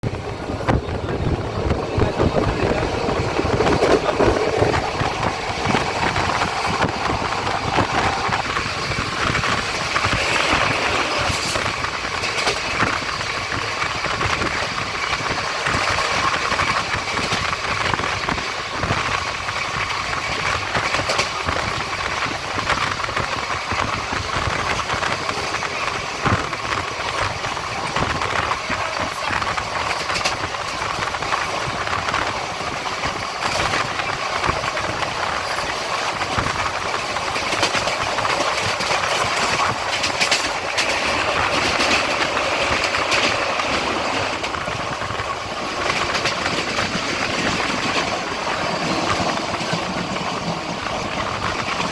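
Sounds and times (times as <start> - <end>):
train running noise: 0.0 - 51.9
wheels clicking over rails: 0.0 - 51.9.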